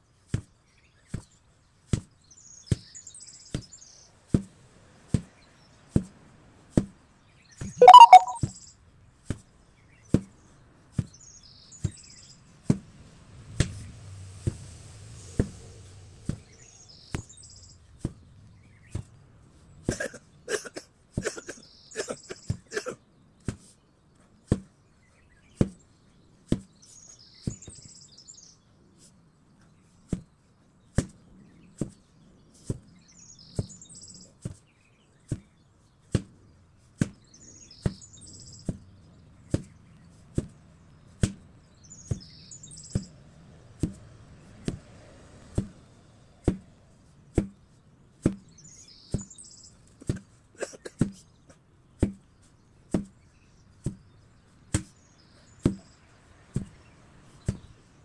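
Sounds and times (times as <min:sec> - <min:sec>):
birds chirping: 0:07.5 - 0:08.4, 0:40.8 - 0:43.2, 0:48.5 - 0:58.0.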